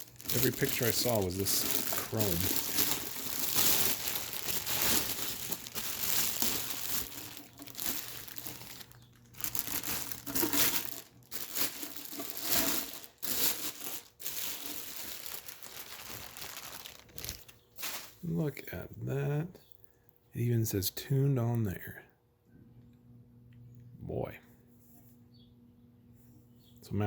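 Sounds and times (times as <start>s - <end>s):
plastic packaging crinkling: 0.0s - 18.3s.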